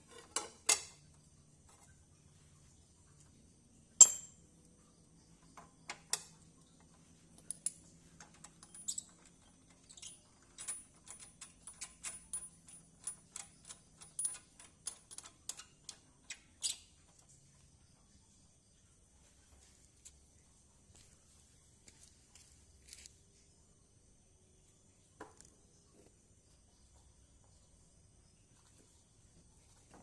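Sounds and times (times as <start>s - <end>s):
clink: 4.0s - 4.5s
small hard objects clicking and tapping: 5.3s - 16.9s.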